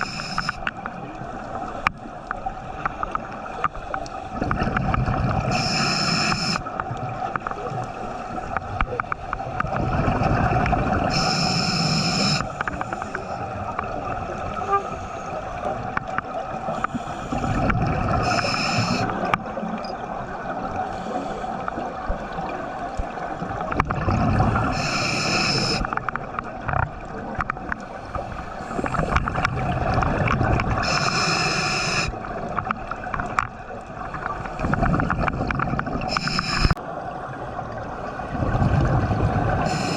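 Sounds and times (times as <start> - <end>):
regulator breathing hiss: 0.0 - 0.7, 5.5 - 6.7, 11.1 - 13.4, 16.7 - 17.6, 18.2 - 19.2, 20.8 - 21.8, 24.7 - 26.0, 30.8 - 32.2, 36.1 - 36.8, 39.6 - 39.9
low gurgling bubbles: 4.3 - 5.8, 6.5 - 11.4, 12.6 - 20.9, 21.6 - 30.9, 32.1 - 39.9.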